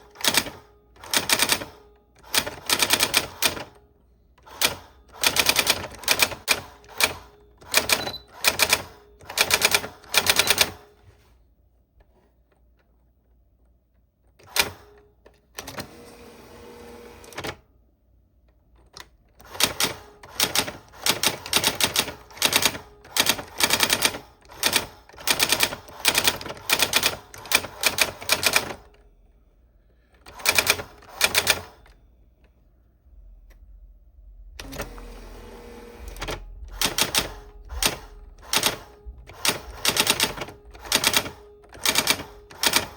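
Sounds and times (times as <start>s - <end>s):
typewriter key strikes: 36.1s - 42.9s.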